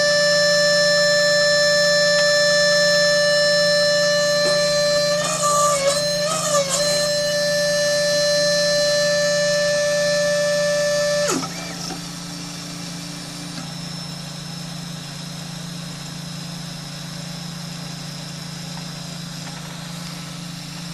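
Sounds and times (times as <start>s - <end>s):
low hum: 0.0s - 16.1s
stepper motors whining: 0.0s - 20.9s.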